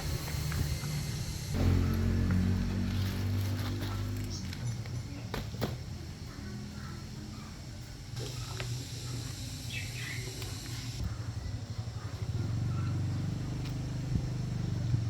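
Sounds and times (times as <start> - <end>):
low mechanical hum: 0.0 - 15.0
bird chirping: 9.1 - 11.0.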